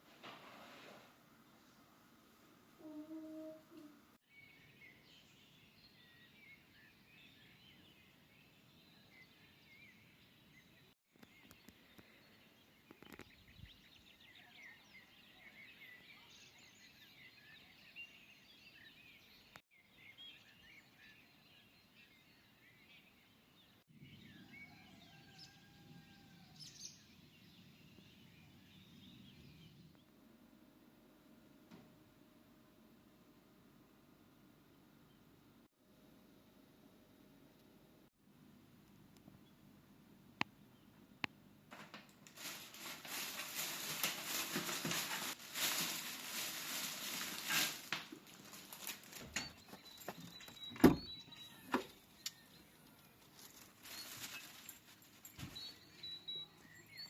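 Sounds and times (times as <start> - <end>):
small birds chirping: 2.8 - 30.2, 42.4 - 57.0.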